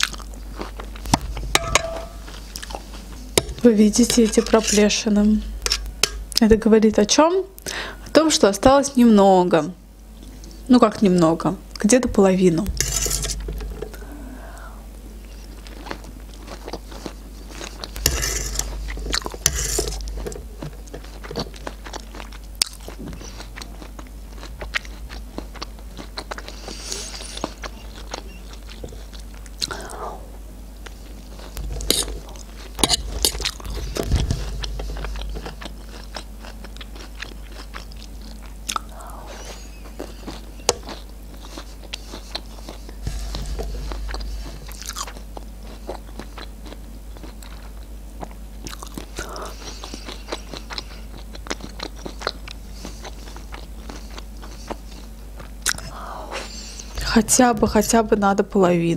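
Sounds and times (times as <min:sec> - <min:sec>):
chewing corn: 0:00.0 - 0:04.7, 0:15.2 - 0:30.0, 0:30.8 - 0:57.0
metal fork scraping metal tray: 0:12.8 - 0:13.5, 0:18.0 - 0:18.8, 0:19.4 - 0:20.3.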